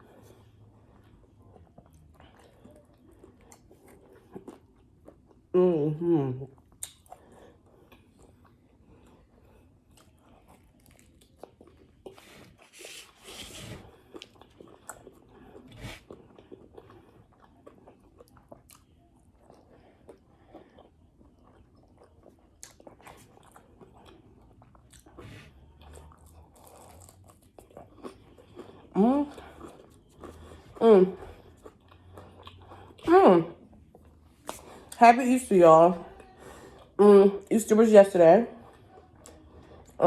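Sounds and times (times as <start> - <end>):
person chewing and crunching food: 0.0 - 5.5, 6.5 - 37.0, 38.5 - 40.0
soft mouth clicks: 6.8 - 7.1.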